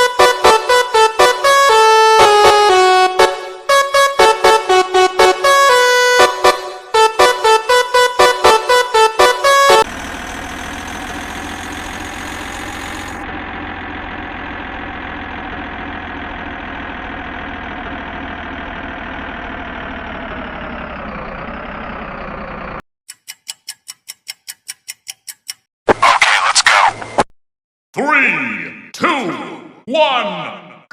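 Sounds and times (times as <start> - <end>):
truck engine idling: 0.0 - 22.8
rapid clock-like ticking: 23.1 - 25.7.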